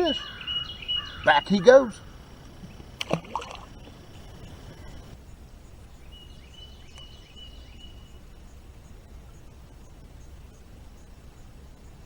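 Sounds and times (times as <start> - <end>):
bird call: 0.0 - 5.1
river water rushing: 3.0 - 4.0.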